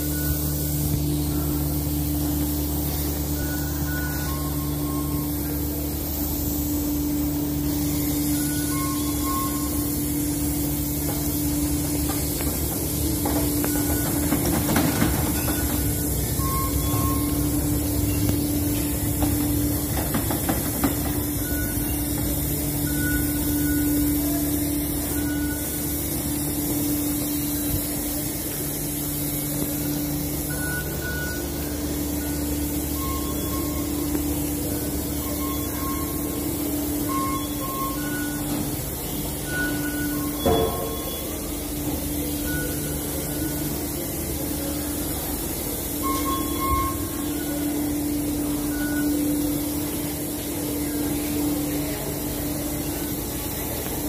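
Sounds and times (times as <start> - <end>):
short electronic beeps: 2.8 - 6.0, 6.8 - 28.0, 29.4 - 51.4.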